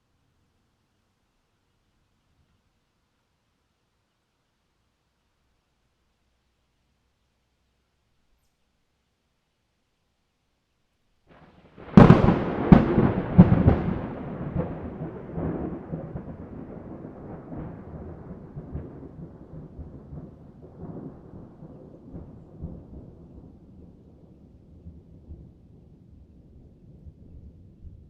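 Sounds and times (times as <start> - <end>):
thunder cracking and rumbling: 11.3 - 28.0.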